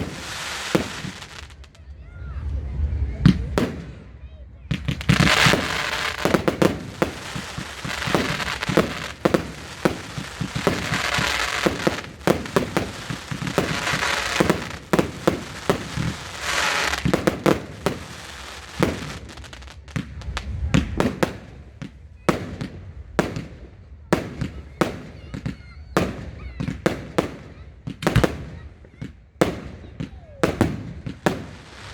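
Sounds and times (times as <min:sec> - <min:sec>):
fireworks bangs and pops: 0:00.0 - 0:01.8, 0:03.2 - 0:31.9
fireworks crackling hiss: 0:00.0 - 0:25.2, 0:29.4 - 0:31.9.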